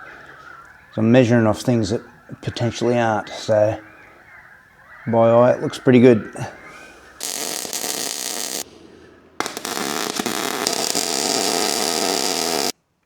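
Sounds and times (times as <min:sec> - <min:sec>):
arc welding crackling: 0:07.2 - 0:12.8.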